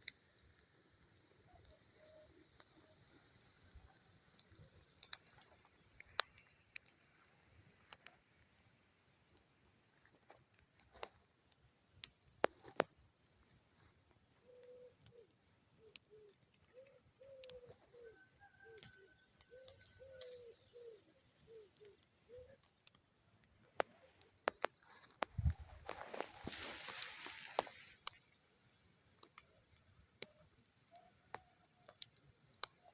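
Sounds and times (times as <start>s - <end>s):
sharp snaps: 4.3s - 7.3s, 18.8s - 32.9s
bird cooing: 14.4s - 23.0s.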